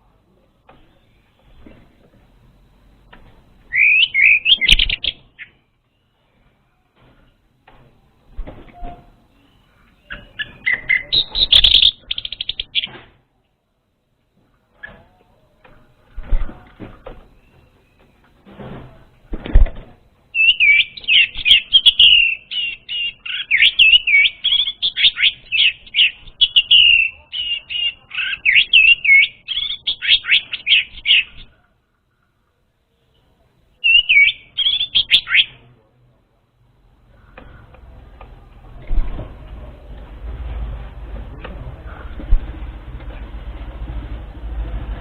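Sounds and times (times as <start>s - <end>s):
bird singing whistled notes: 3.7s - 5.6s, 20.3s - 31.4s, 33.8s - 35.6s.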